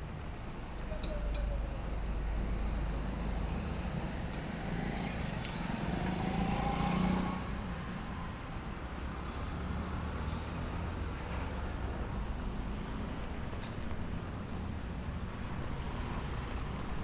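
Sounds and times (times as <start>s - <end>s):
road traffic rumble: 0.0s - 17.0s
vehicle passing: 2.2s - 7.7s.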